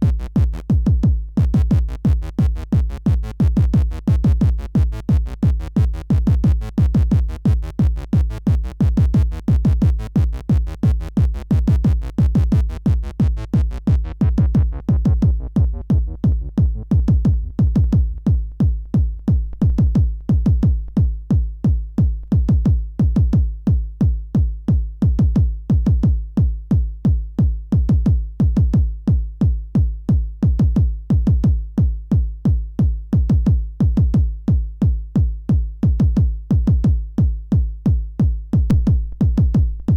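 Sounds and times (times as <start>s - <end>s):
electronic music with heavy bass: 0.0s - 21.3s, 38.7s - 39.9s.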